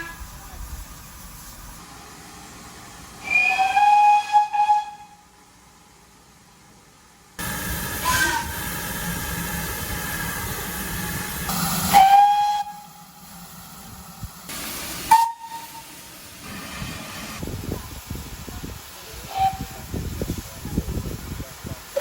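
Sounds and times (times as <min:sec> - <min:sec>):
steam hissing: 0:00.0 - 0:04.8, 0:07.4 - 0:22.0
steam locomotive whistle: 0:03.2 - 0:05.2, 0:07.4 - 0:08.9, 0:11.5 - 0:13.2, 0:15.0 - 0:16.0, 0:19.3 - 0:19.9.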